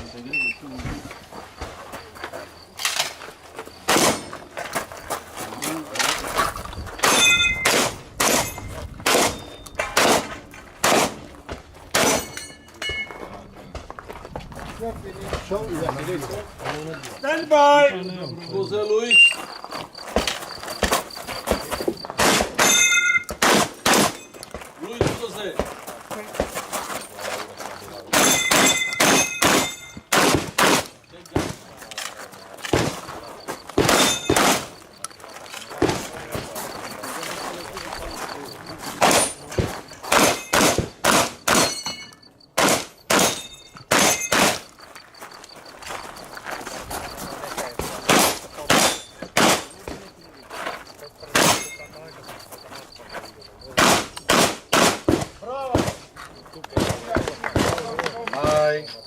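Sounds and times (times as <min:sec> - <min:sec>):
shotgun shots: 0:03.8 - 0:04.3, 0:07.0 - 0:11.3, 0:11.9 - 0:12.3, 0:22.2 - 0:24.2, 0:28.1 - 0:31.7, 0:33.8 - 0:34.8, 0:40.1 - 0:41.8, 0:42.6 - 0:44.6, 0:48.1 - 0:49.7, 0:51.3 - 0:51.7, 0:53.8 - 0:56.1, 0:56.8 - 0:57.8
steel targets clanging: 0:07.0 - 0:11.2, 0:11.9 - 0:13.4, 0:22.0 - 0:25.5, 0:28.0 - 0:37.4, 0:38.6 - 0:45.0, 0:47.3 - 0:50.1, 0:50.8 - 0:52.6.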